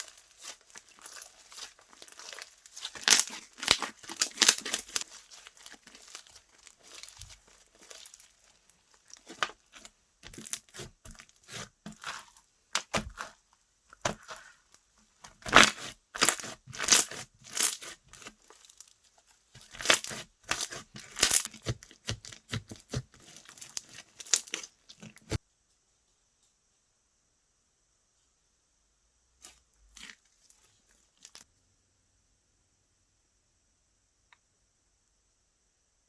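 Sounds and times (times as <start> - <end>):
slime squeezed crackling: 0.0 - 13.4, 15.3 - 18.9, 19.5 - 25.4.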